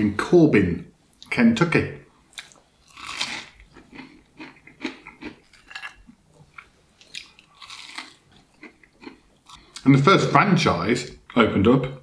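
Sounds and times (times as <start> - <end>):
crispy coating crunching: 2.3 - 10.0.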